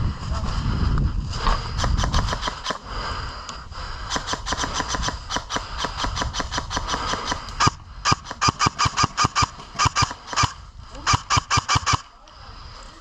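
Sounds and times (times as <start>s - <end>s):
airsoft gun shots: 1.8s - 2.8s, 4.1s - 12.1s.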